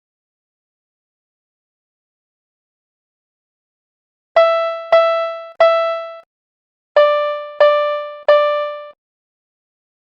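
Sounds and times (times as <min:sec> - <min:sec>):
synthesized pop tones: 0:04.4 - 0:06.2, 0:07.0 - 0:09.0.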